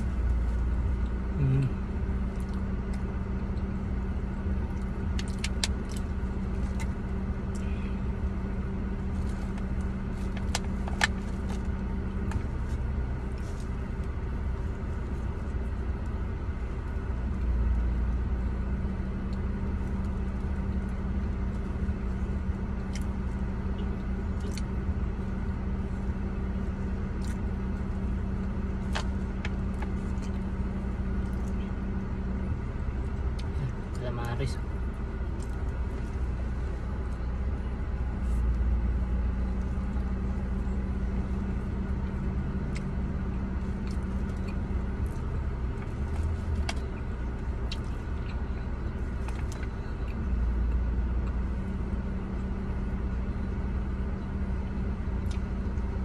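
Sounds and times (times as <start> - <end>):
car idling hum: 0.0 - 56.0.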